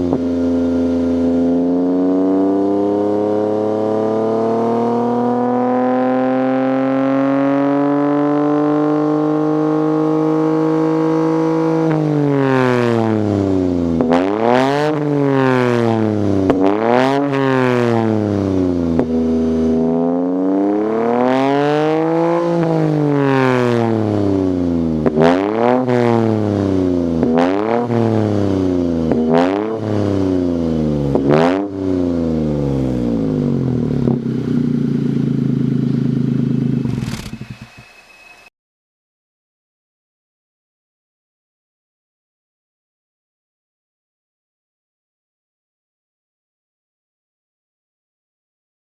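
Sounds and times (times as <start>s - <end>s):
car engine revving: 0.0s - 38.2s
exhaust cracks: 24.8s - 37.8s.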